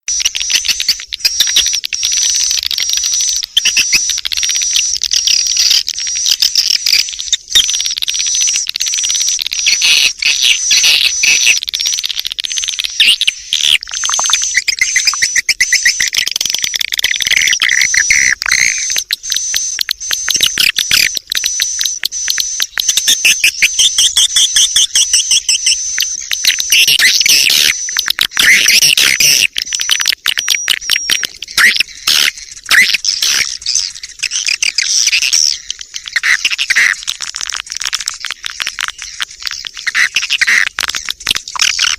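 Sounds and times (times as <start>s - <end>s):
swiftlets chirping and twittering: 12.5s - 37.1s.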